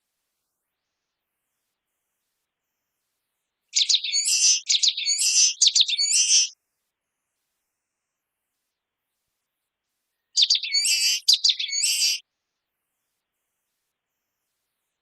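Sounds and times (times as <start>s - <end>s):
small bird singing high-pitched song: 3.7s - 6.6s, 10.1s - 12.3s.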